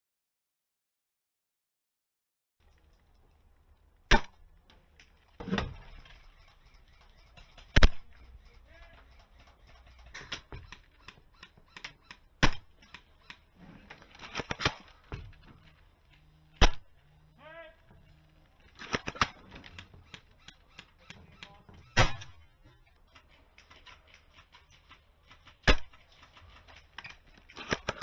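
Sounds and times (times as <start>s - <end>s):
small clicks and knocks: 2.6s - 17.0s, 17.9s - 28.0s
airsoft rifle shots: 4.1s - 4.4s, 7.7s - 8.2s, 12.4s - 13.1s, 14.0s - 15.3s, 16.5s - 17.1s, 18.7s - 19.8s, 21.8s - 22.6s, 25.6s - 26.2s, 27.5s - 28.0s.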